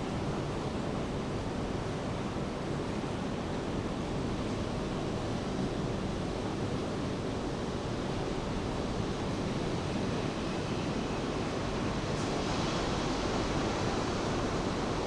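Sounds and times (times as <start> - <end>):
rain: 11.6 - 15.0.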